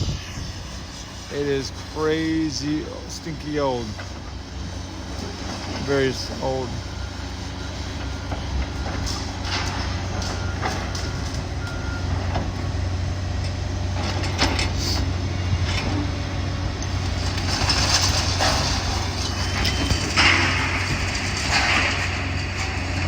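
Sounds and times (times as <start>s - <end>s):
diesel engine running: 0.0s - 23.0s
reversing beeps: 5.9s - 12.3s.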